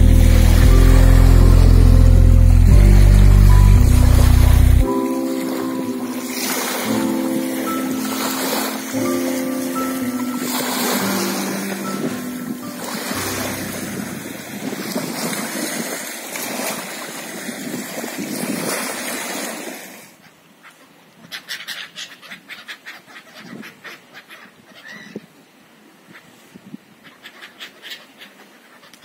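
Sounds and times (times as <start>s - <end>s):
sea waves breaking: 0.0s - 20.2s.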